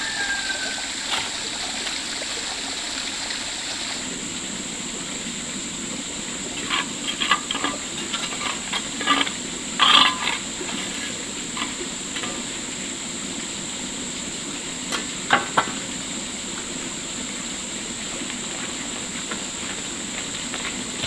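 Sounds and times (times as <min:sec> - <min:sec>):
steady high hiss: 0:00.0 - 0:21.0.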